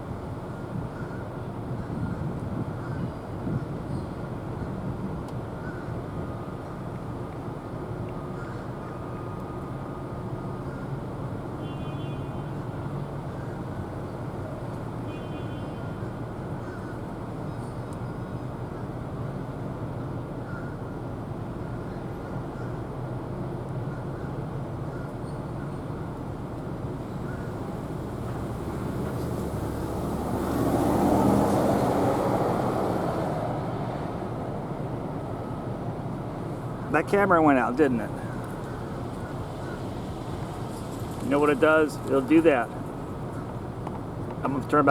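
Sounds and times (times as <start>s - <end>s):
low rumble of traffic: 0.0s - 44.9s
vehicle passing by: 27.1s - 36.7s.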